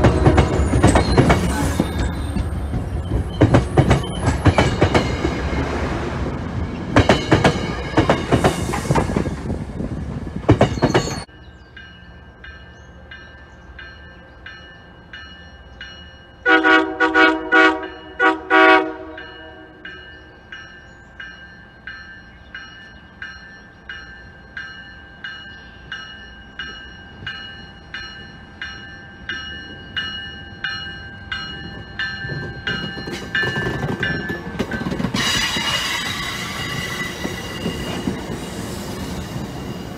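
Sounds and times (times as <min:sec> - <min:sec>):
train wheels clattering: 0:00.0 - 0:05.8, 0:06.7 - 0:11.3, 0:28.7 - 0:39.9
bell ringing: 0:00.4 - 0:05.3
train horn toots: 0:16.4 - 0:19.9.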